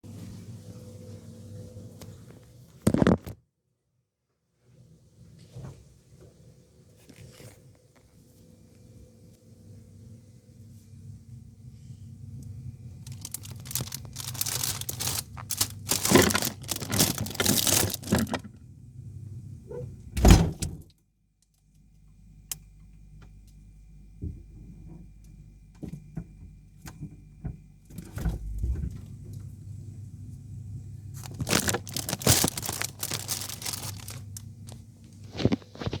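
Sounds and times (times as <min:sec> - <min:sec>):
rustling and clattering: 0:13.0 - 0:18.6, 0:31.2 - 0:36.0
refrigerator door thump: 0:14.2 - 0:18.5, 0:20.2 - 0:20.9, 0:28.0 - 0:29.0
low hum: 0:28.2 - 0:35.0.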